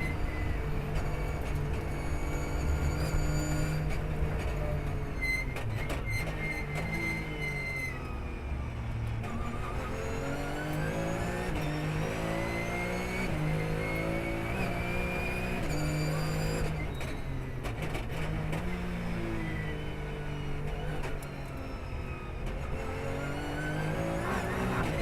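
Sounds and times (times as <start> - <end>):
race car engine revving: 22.6 - 25.0.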